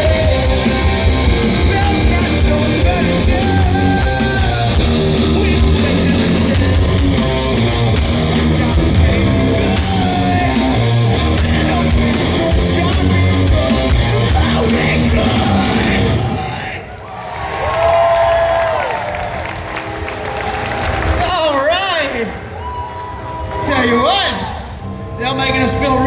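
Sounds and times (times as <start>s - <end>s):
drum and cymbal hits: 0.0s - 16.2s
bass guitar: 0.0s - 16.7s
electric guitars: 0.0s - 16.7s.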